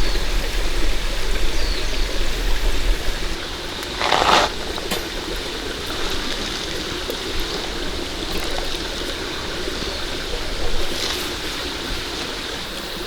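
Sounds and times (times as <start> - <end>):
rushing water: 0.0 - 13.0
water swish: 3.3 - 13.0.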